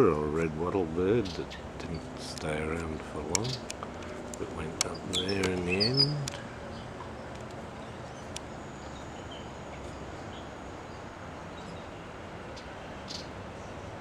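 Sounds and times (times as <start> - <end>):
low outdoor rumble: 0.0 - 14.0
small clicks: 2.3 - 6.5, 7.3 - 7.6
faint high bird chirps: 4.6 - 13.9.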